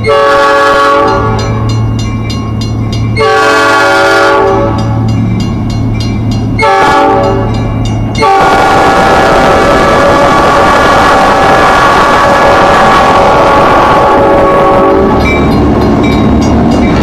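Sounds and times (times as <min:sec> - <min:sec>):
locomotive air horn blasts: 0:00.0 - 0:01.6, 0:03.2 - 0:05.0, 0:06.6 - 0:07.6, 0:08.2 - 0:15.2
train passing rumble: 0:00.0 - 0:17.0.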